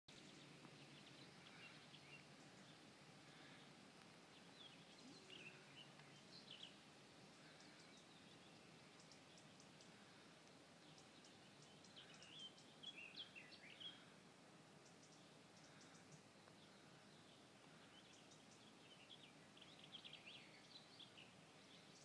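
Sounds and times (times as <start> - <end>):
outdoor background noise: 0.1 - 22.0
small birds chirping: 0.1 - 22.0
faint high ticks: 8.9 - 12.7.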